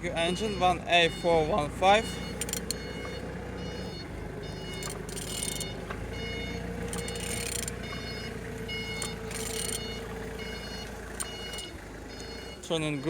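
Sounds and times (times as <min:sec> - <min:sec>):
reversing alarm beeping: 0:00.0 - 0:13.0
ratchet turning engine over: 0:02.2 - 0:03.0, 0:04.6 - 0:05.8, 0:06.8 - 0:08.0, 0:08.9 - 0:10.0, 0:11.1 - 0:11.7.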